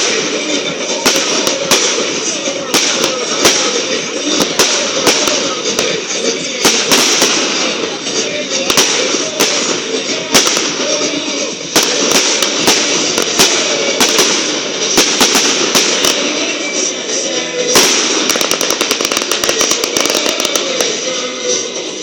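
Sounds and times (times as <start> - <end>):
firework bursts and bangs: 0.0 - 22.0
music playing: 0.0 - 22.0
crackling firework pops: 6.7 - 7.8, 11.8 - 16.6, 17.8 - 21.0.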